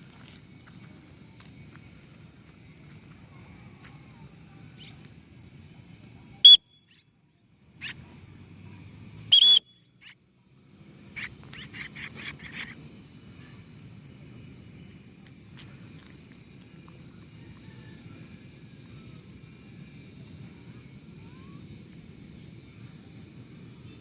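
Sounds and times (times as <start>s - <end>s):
shrill whistles: 6.4s - 7.0s, 9.3s - 10.2s.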